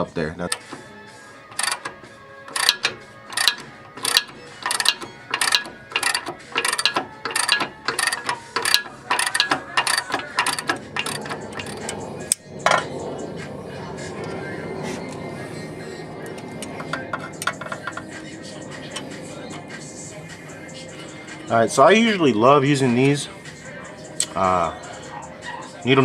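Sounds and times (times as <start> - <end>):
socket ratchet clicking: 1.5 - 12.4.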